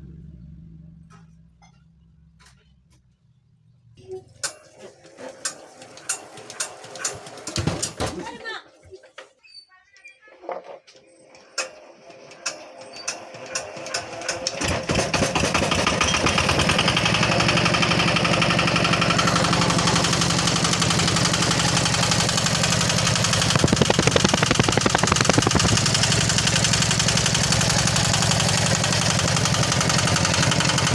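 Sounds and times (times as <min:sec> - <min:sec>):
diesel engine starting and running: 0:00.0 - 0:03.0, 0:11.6 - 0:30.9.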